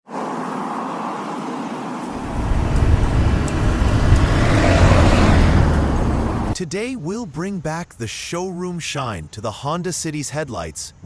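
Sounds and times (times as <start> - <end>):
road noise hiss: 0.1 - 6.6
vehicle low rumble: 2.1 - 6.6.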